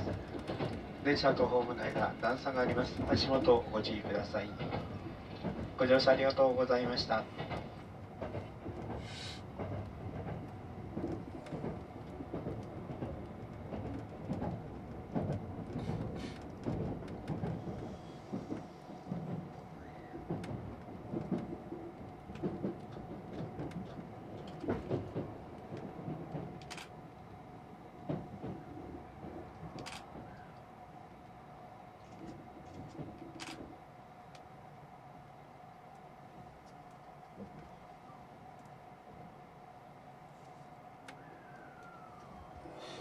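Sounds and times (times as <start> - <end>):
wheels clacking and knocking: 0.0 - 6.3, 7.2 - 19.5, 20.1 - 26.8
train rumble inside carriage: 0.0 - 43.0.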